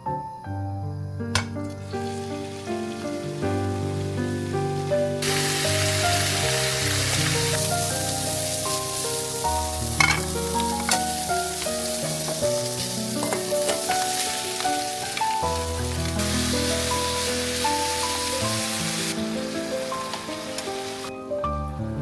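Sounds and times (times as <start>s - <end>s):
background music: 0.0s - 22.0s
food sizzling in a pan: 1.4s - 21.3s.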